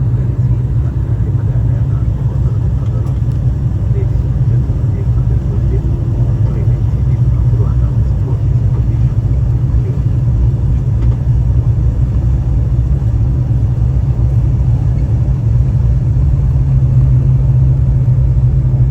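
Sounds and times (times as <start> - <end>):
aircraft low rumble: 0.0 - 18.9.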